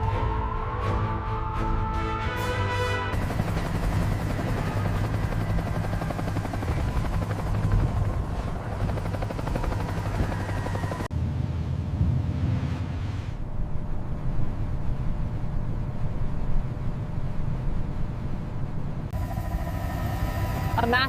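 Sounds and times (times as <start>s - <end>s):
music: 0.0s - 7.2s.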